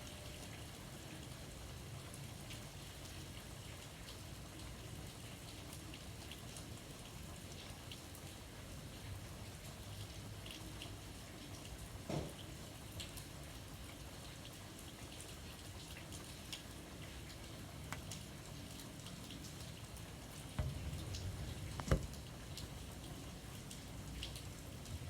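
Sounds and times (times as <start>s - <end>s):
light rain falling: 0.0s - 25.0s
loud knock: 20.6s - 22.2s.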